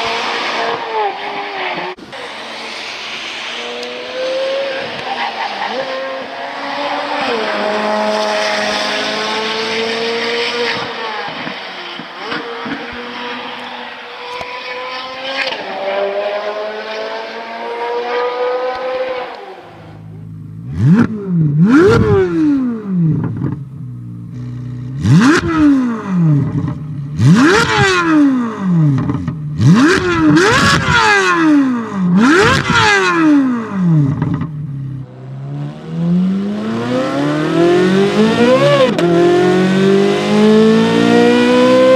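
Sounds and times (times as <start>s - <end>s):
car exhaust shifting gears: 17.0s - 41.9s
engine revving hard: 20.7s - 23.2s, 24.4s - 26.6s, 27.2s - 34.2s, 35.3s - 41.9s.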